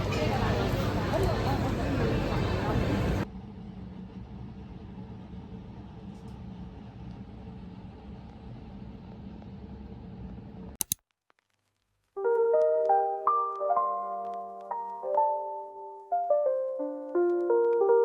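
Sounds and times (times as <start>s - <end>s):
vehicle engine rumble: 0.0s - 3.3s
faint hum: 0.0s - 10.6s
sharp clicks: 10.8s - 11.1s
soft piano music: 12.2s - 18.0s.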